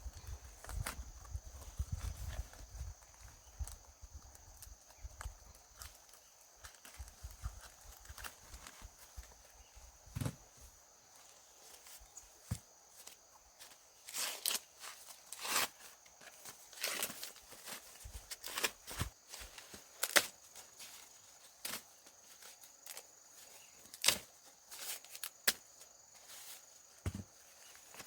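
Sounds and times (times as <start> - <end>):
corn stalks rustling and snapping: 3.2 - 9.4, 13.0 - 28.0.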